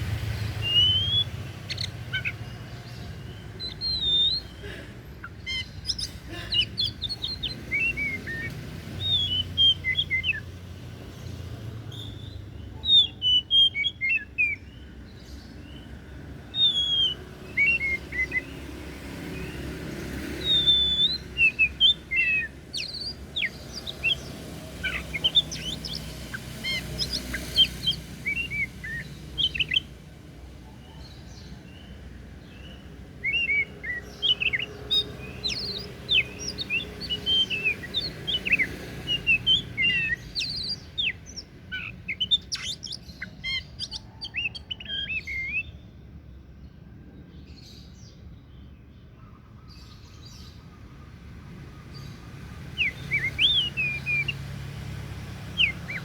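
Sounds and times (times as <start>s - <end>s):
bird singing whistled notes: 0.0s - 10.6s, 11.9s - 29.9s, 30.8s - 45.9s, 49.2s - 56.0s.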